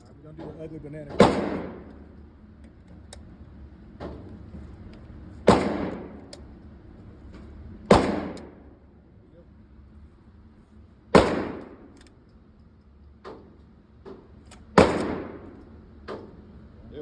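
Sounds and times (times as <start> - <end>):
rifle shots with ringing echo: 1.1 - 2.2, 5.4 - 6.3, 7.9 - 8.8, 11.1 - 12.0, 14.7 - 15.6
fainter gunshot: 1.2 - 1.9, 5.5 - 6.2, 7.9 - 8.6, 11.2 - 11.9, 14.8 - 15.6.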